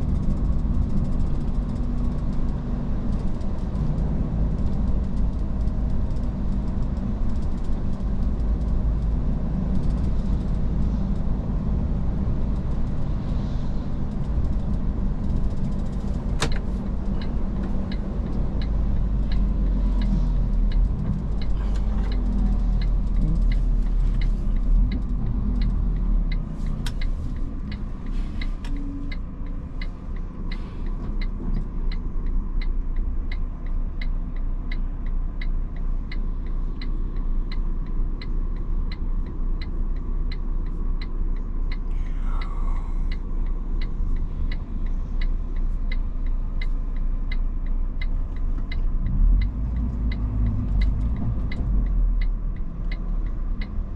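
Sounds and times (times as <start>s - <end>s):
truck engine and road rumble: 0.0s - 53.9s
turn signal ticking: 0.0s - 53.9s
click: 26.8s - 32.0s, 42.3s - 53.8s.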